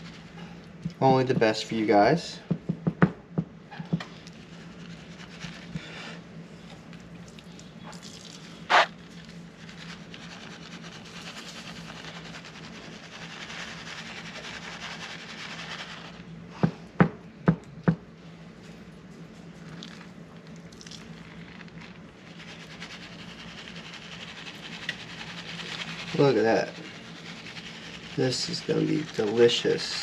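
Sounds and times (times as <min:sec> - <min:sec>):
steady low hum: 0:00.0 - 0:30.0
soft rubbing and rustling: 0:04.1 - 0:06.0, 0:08.7 - 0:16.3, 0:18.6 - 0:30.0.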